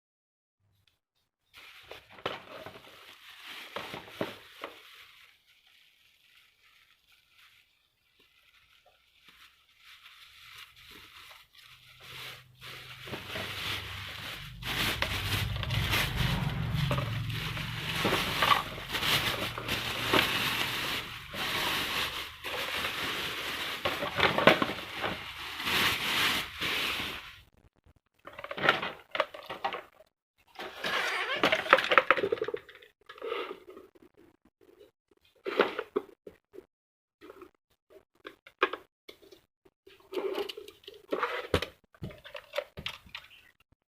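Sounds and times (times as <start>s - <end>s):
packaging crackling and scraping: 1.5s - 35.9s.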